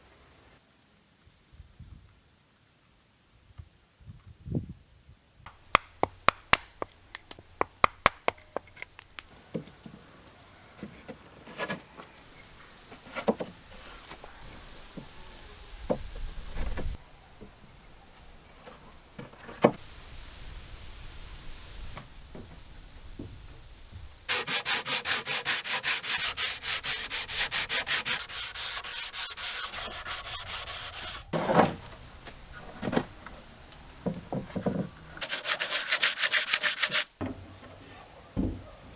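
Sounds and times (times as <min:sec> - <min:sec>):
sharp taps on wood: 0:05.5 - 0:09.3
rubbing strokes on wood: 0:24.3 - 0:31.3, 0:35.2 - 0:37.1.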